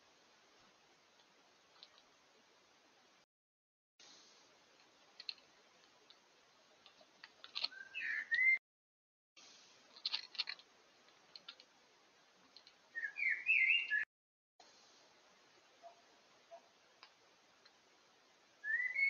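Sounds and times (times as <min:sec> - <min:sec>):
bird bill pecking and clicking: 0:01.2 - 0:02.1, 0:04.8 - 0:08.5, 0:09.9 - 0:11.8, 0:12.4 - 0:12.8
whistled bird calls gliding upward: 0:07.7 - 0:08.6, 0:12.9 - 0:14.1, 0:18.6 - 0:19.0.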